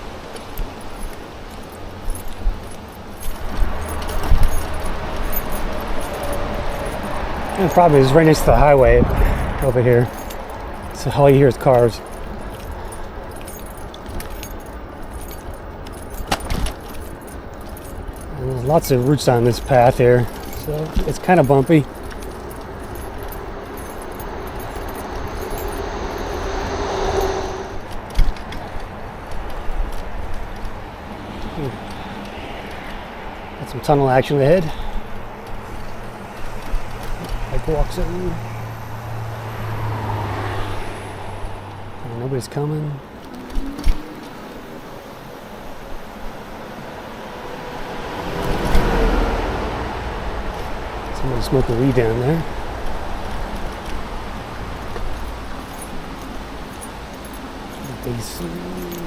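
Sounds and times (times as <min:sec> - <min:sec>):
bike rattling over bumps: 0:00.0 - 0:26.8
wind rumble on microphone: 0:00.0 - 0:33.6
bike rattling and clinking: 0:00.0 - 0:47.2, 0:48.0 - 0:59.0
highway traffic rushing: 0:00.0 - 0:59.0.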